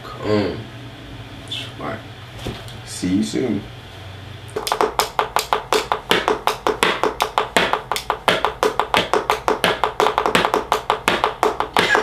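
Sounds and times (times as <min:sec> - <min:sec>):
rapid sharp taps with ring: 0:04.6 - 0:12.0.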